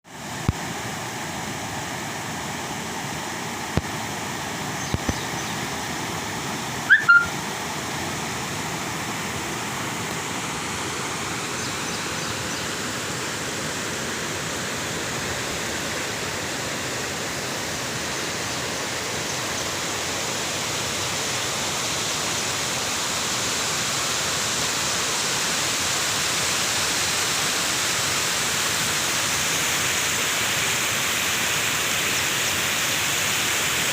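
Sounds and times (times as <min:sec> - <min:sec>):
water rushing: 0:00.1 - 0:33.9
short high chirp: 0:06.9 - 0:07.3.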